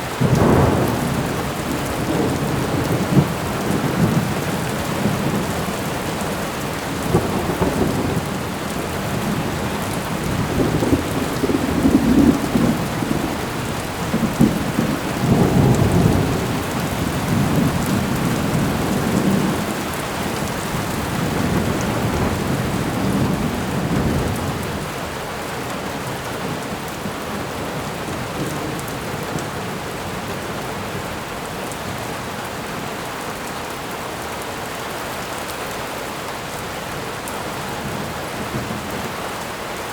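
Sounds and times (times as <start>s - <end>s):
heavy rain: 0.0s - 39.9s
rolling thunder: 0.2s - 25.0s.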